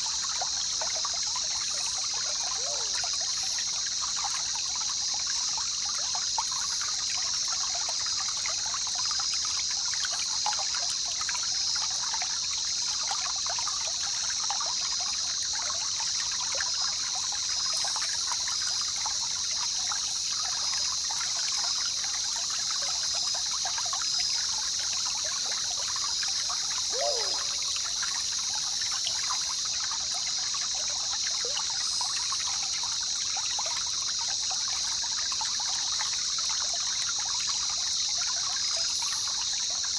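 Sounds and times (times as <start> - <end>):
river trickling and splashing: 0.0 - 39.9
short falling whistle: 26.9 - 27.6.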